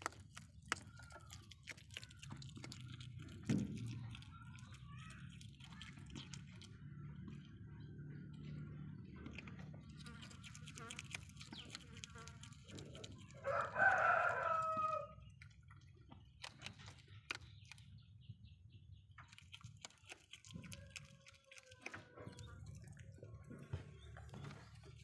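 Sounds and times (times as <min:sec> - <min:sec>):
rooster crowing: 0:13.4 - 0:15.2.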